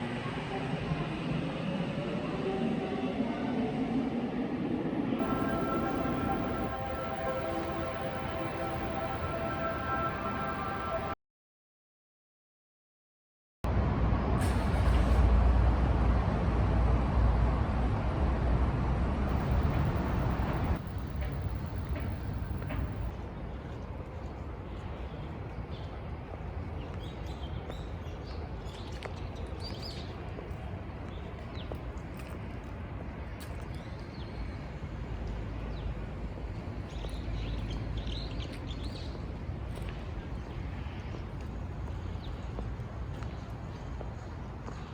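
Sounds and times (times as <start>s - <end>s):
passing vehicles rumbling: 5.2s - 11.2s, 13.7s - 23.1s.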